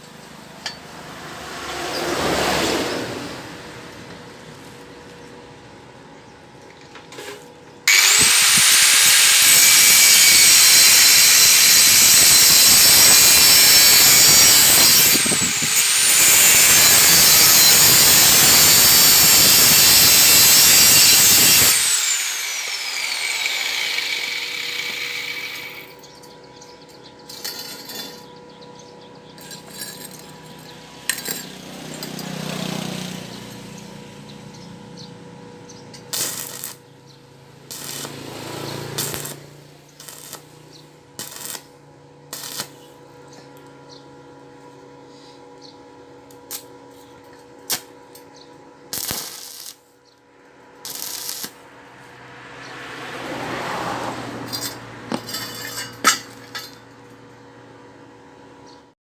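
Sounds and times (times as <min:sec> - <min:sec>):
disc grinder cutting iron: 0:07.2 - 0:26.1, 0:35.7 - 0:36.8, 0:37.6 - 0:41.7, 0:42.3 - 0:42.8, 0:49.0 - 0:49.8, 0:50.8 - 0:51.6, 0:54.3 - 0:57.0
metal pieces knocking: 0:27.3 - 0:28.3, 0:29.4 - 0:32.3, 0:54.5 - 0:56.9.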